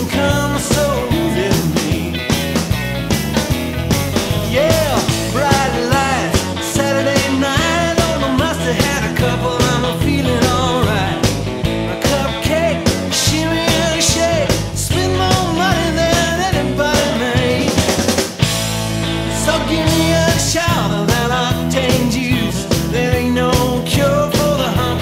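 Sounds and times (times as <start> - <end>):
bass guitar: 0.0 - 25.0
drum beat: 0.0 - 25.0.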